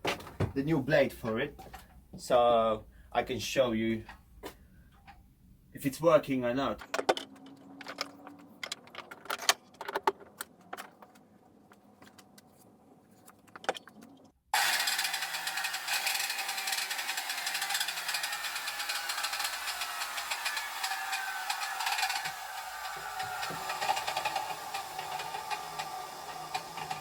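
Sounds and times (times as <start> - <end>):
clicks and knocks of handling: 6.8 - 12.5
circular saw motor running: 14.6 - 27.0.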